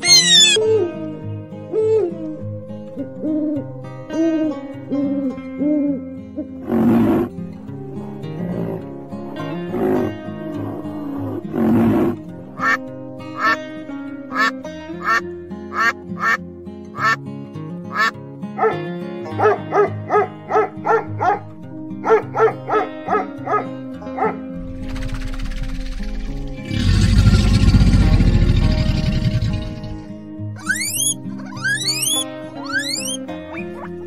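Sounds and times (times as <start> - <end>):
geese honking: 0.0 - 0.6, 12.6 - 13.6, 14.3 - 16.4, 17.0 - 17.2, 17.9 - 19.6, 30.6 - 34.0
short low animal call: 0.0 - 0.6
background music: 0.0 - 34.0.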